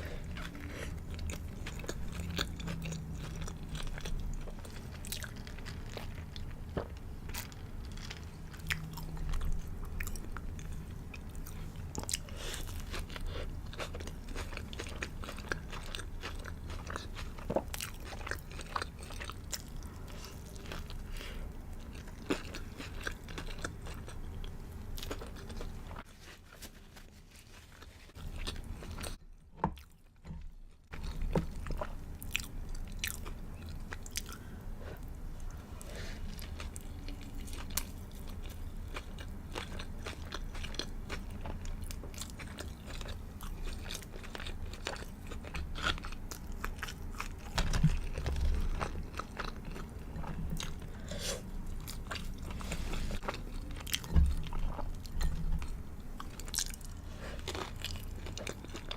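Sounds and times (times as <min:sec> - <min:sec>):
person chewing crispy food: 0:00.0 - 0:58.9.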